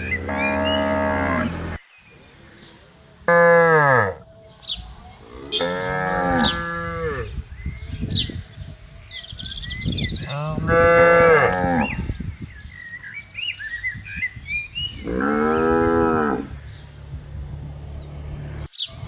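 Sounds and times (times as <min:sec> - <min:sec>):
cow mooing: 0:00.0 - 0:01.8, 0:03.3 - 0:04.2, 0:05.3 - 0:07.3, 0:10.3 - 0:12.1, 0:15.0 - 0:16.6.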